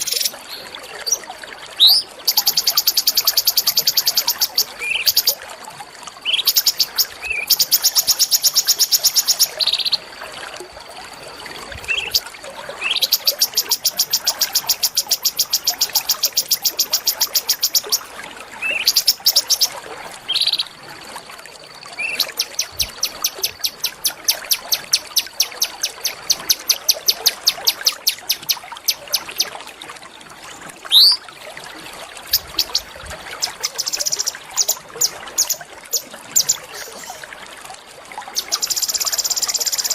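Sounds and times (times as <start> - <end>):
songbird singing high notes: 30.9 - 31.2.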